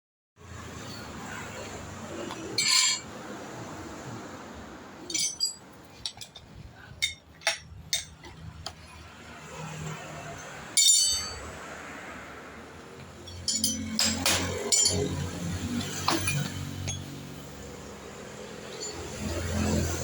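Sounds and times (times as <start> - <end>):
metal clinking: 2.3 - 3.1, 5.0 - 9.1, 10.2 - 11.6, 13.0 - 20.0.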